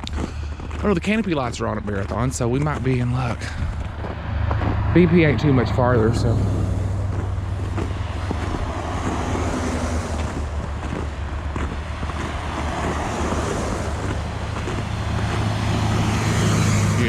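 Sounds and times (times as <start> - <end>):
highway traffic passing: 0.0 - 17.0
wind rumbling on microphone: 3.4 - 17.0.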